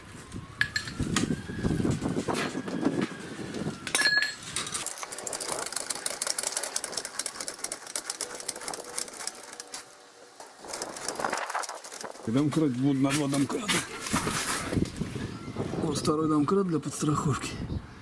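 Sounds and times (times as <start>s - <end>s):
metal tool clank: 3.9s - 4.9s
rapid mechanical clicking: 4.8s - 12.4s.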